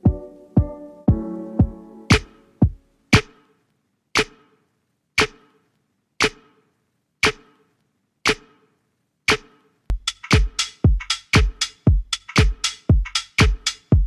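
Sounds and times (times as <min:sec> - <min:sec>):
electronic percussive hit: 0:01.1 - 0:03.4.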